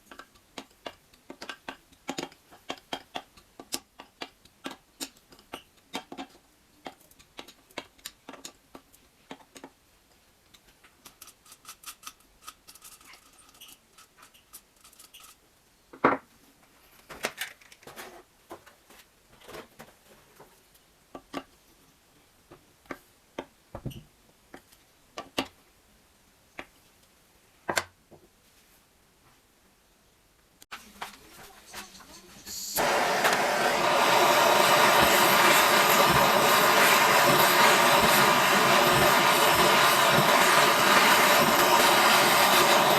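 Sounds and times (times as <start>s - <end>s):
tools clicking and knocking: 0.0s - 9.8s, 10.5s - 15.4s
metal parts scraping: 11.2s - 15.4s.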